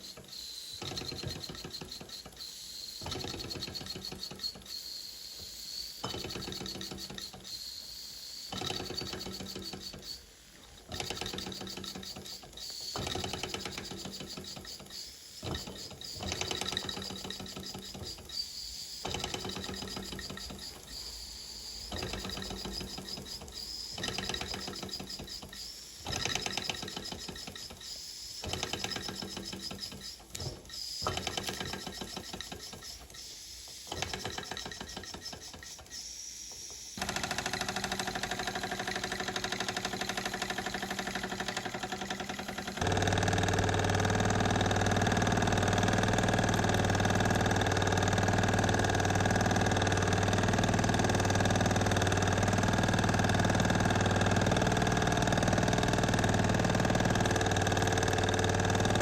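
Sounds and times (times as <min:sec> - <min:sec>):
steam engine chuffing: 0:37.0 - 0:59.0.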